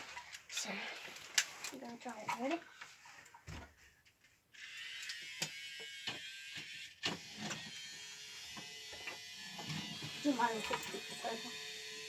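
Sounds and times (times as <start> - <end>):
toy train motor whining: 4.5 - 12.0.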